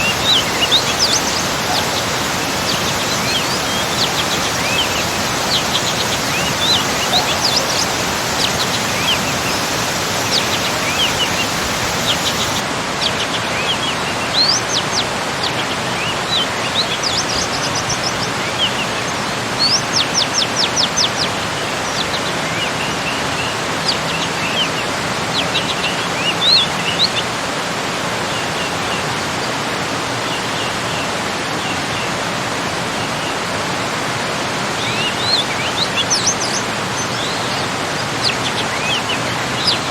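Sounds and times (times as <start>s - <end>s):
birds chirping: 0.0s - 12.6s
small waterfall rushing: 0.0s - 39.9s.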